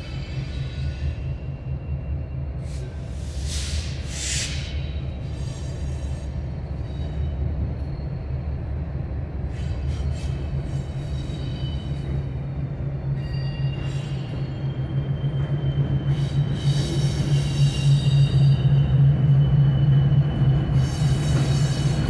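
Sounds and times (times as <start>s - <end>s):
diesel locomotive drone: 0.0s - 22.0s.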